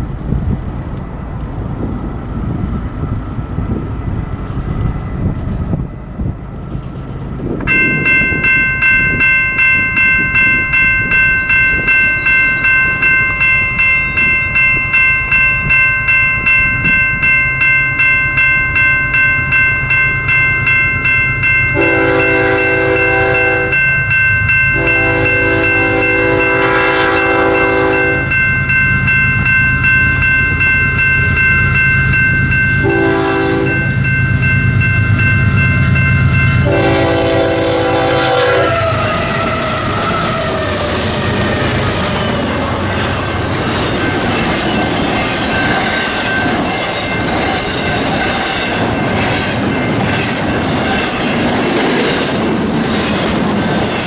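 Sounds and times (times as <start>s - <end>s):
approaching train rumble: 0.0s - 54.0s
crossing bell ringing: 3.6s - 54.0s
locomotive horn blasts: 21.7s - 23.9s, 24.8s - 28.4s, 32.8s - 34.0s, 36.6s - 39.5s.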